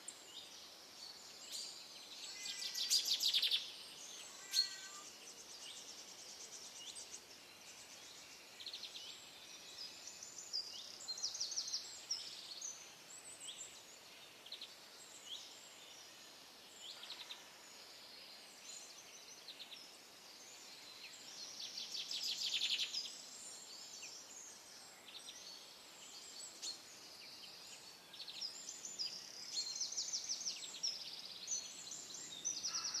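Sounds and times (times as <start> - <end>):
faint background hiss: 0.0 - 33.0
small birds trilling: 4.1 - 5.1.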